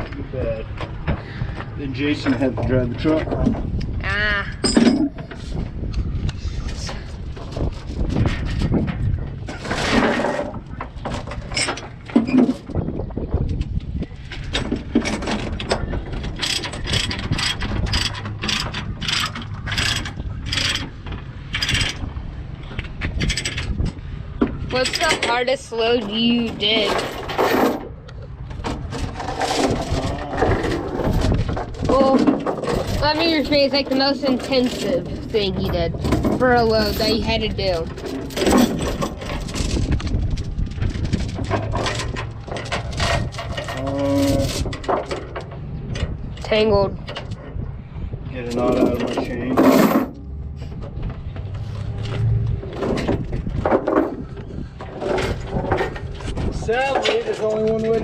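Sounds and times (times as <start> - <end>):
heavy chain clanking: 4.5 - 5.4, 8.1 - 12.7, 14.4 - 22.1, 23.0 - 24.0, 24.7 - 27.9, 28.6 - 47.6, 48.4 - 50.6
steady low hum: 12.9 - 56.9.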